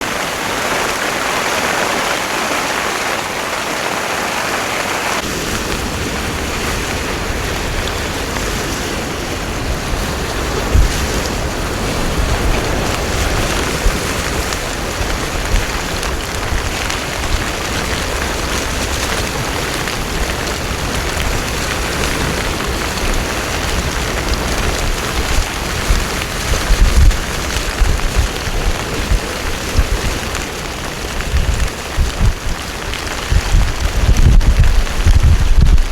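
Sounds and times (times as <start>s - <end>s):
heavy rain falling: 0.0s - 35.9s.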